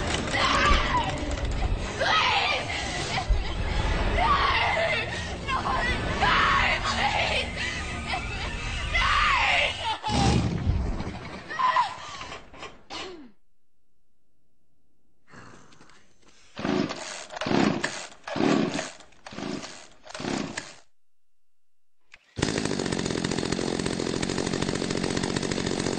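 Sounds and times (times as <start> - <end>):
chainsaw engine running: 0.0 - 2.0, 6.7 - 9.0, 16.6 - 20.9, 22.2 - 25.9.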